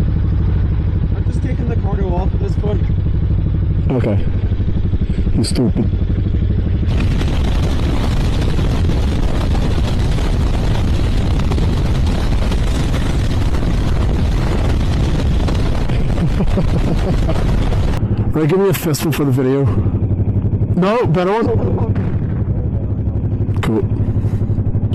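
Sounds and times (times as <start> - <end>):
motorcycle engine rumble: 0.0 - 24.9
wind rush on microphone: 6.5 - 18.4.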